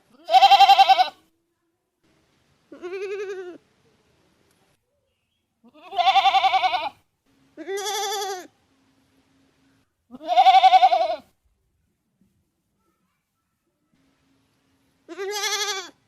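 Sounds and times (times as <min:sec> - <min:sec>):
goat bleating: 0:00.1 - 0:01.2, 0:02.7 - 0:03.6, 0:05.6 - 0:07.0, 0:07.6 - 0:08.5, 0:10.1 - 0:11.3, 0:15.1 - 0:16.0.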